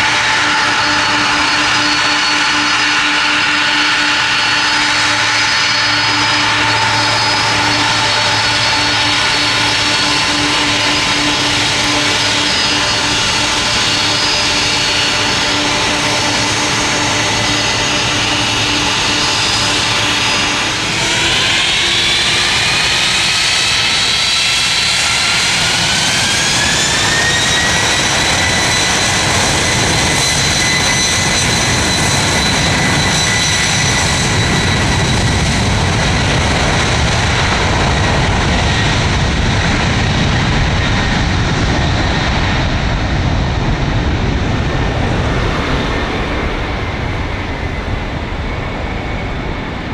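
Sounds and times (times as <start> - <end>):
jet engines whining: 0.0 - 49.9
deep engine rumble: 34.3 - 49.9.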